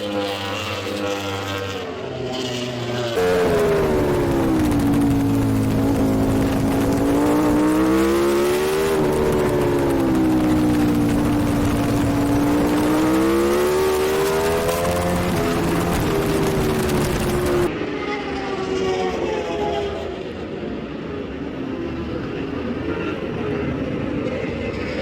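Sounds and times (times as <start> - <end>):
motorcycle engine racing: 0.0 - 20.2
wind rushing: 3.2 - 17.7.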